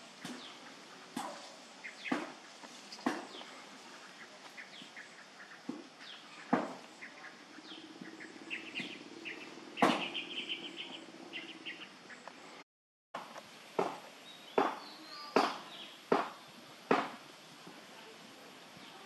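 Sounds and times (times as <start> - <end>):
small birds chirping: 0.0 - 12.6, 14.0 - 19.0
sharp knocks: 3.0 - 3.4, 6.5 - 6.8, 9.8 - 10.1, 13.2 - 14.0, 14.6 - 14.8, 15.4 - 17.2.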